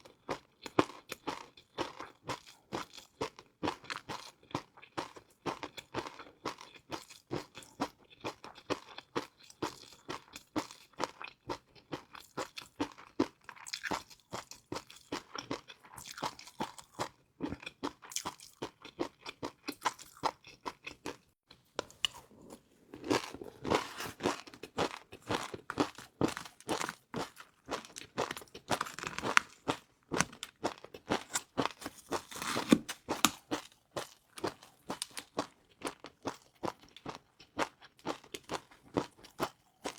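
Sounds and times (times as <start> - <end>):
crunching fried noodles: 21.9 - 39.9.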